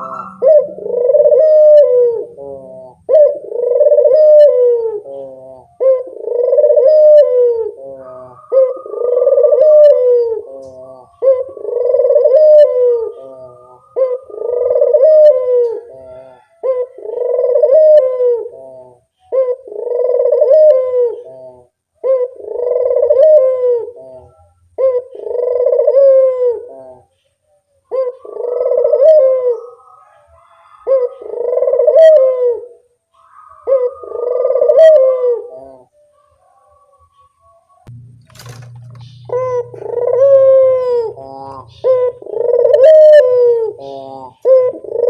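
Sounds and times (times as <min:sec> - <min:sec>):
dove cooing: 0:00.0 - 0:45.0.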